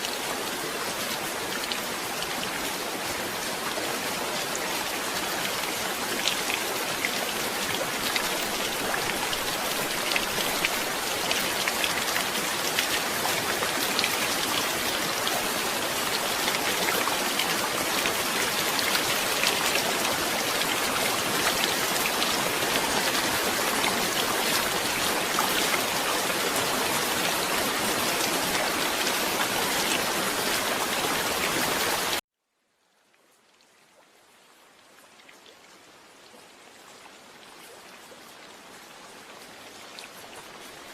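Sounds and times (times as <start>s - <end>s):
heavy rain: 0.0s - 32.2s.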